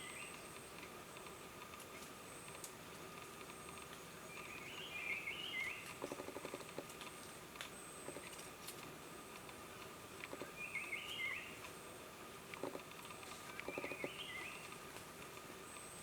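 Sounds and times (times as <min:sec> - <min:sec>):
faint high insect buzz: 0:00.0 - 0:16.0
warbled bird calls: 0:13.4 - 0:14.7.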